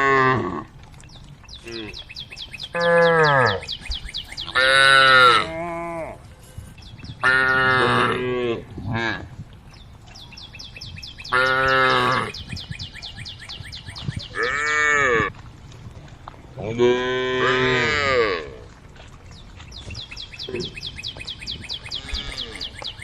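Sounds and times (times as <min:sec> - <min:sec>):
cows mooing: 0:00.0 - 0:00.8, 0:02.7 - 0:06.3, 0:07.2 - 0:09.3, 0:11.2 - 0:12.5, 0:14.3 - 0:15.4, 0:16.6 - 0:18.7, 0:21.8 - 0:22.8.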